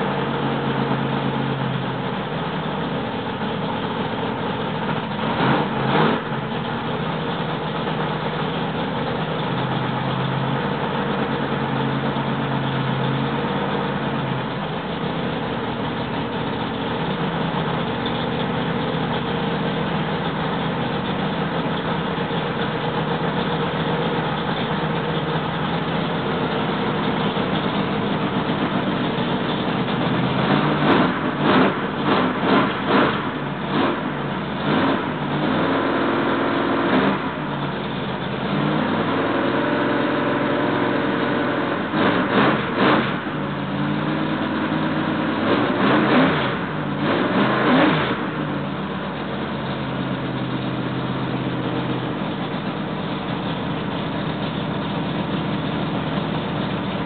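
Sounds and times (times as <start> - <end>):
engine idling fast: 0.0 - 57.0
engine revving: 5.1 - 22.2, 25.7 - 52.7.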